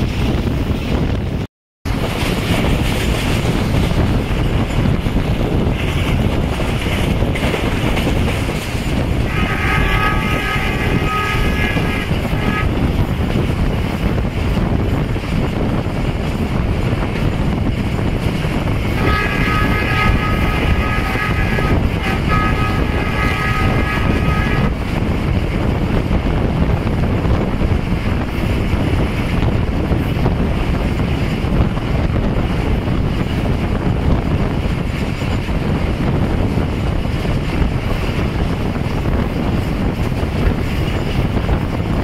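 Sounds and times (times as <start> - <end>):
train wheel and track rumble: 0.0 - 42.0
wind buffeting: 0.0 - 42.0
locomotive air horn: 9.2 - 13.0, 18.9 - 24.9.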